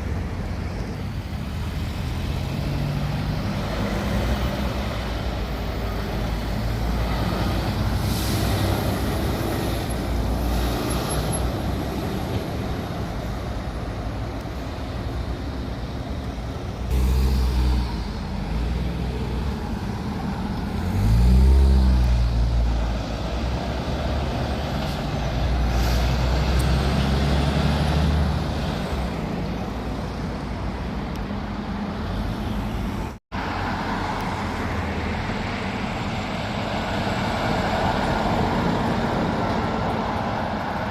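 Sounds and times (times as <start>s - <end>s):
diesel trucks passing: 0.0s - 40.9s
air brake hisses: 8.0s - 8.8s.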